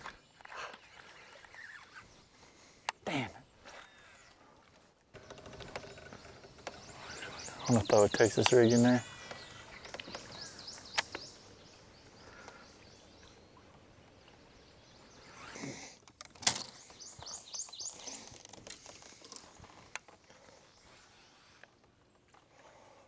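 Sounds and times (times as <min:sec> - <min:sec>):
birds chirping: 0:00.0 - 0:21.8.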